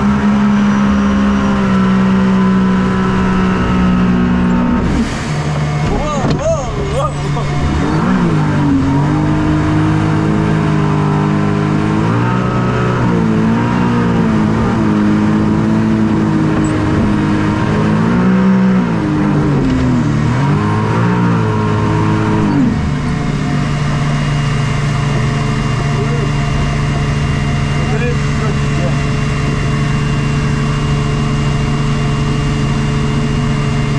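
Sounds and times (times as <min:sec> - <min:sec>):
watercraft engine revving: 0:00.0 - 0:33.9.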